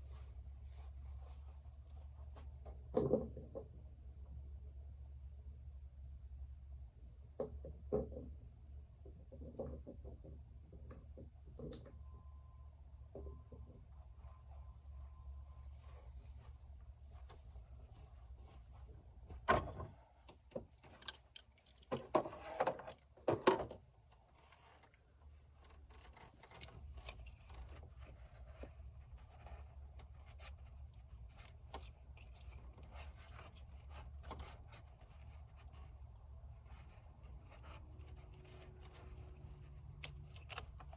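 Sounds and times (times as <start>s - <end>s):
low steady hum: 10.3s - 40.9s.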